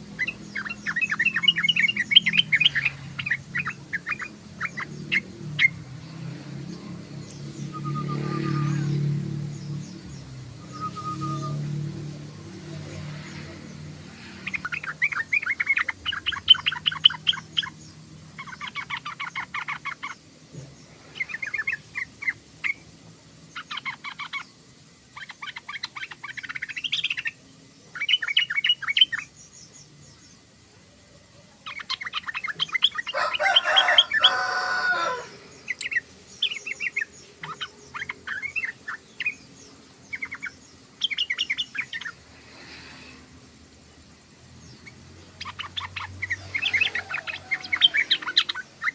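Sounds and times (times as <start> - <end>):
bird chattering: 0.0 - 5.8, 12.6 - 20.2, 23.5 - 24.5, 25.1 - 29.4, 31.6 - 42.8, 44.8 - 48.9.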